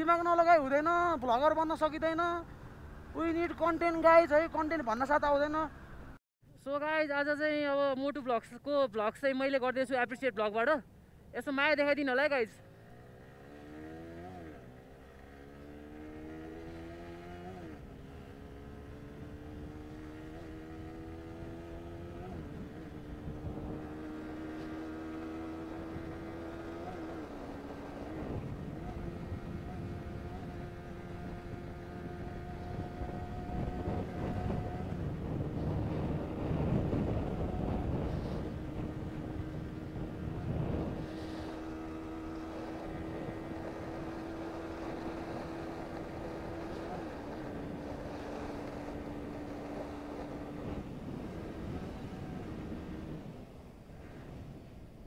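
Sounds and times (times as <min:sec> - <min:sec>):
motorcycle engine running: 0:12.6 - 0:53.4
wind rush: 0:19.0 - 0:55.0.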